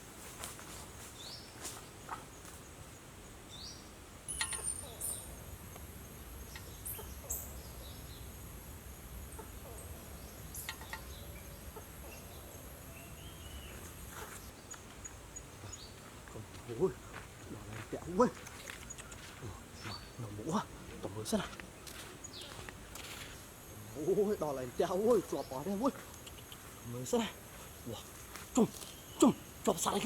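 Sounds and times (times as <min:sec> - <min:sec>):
faint bird chirps: 0:03.5 - 0:08.4, 0:09.3 - 0:16.0, 0:16.7 - 0:30.0
scattered clicks: 0:18.4 - 0:19.3.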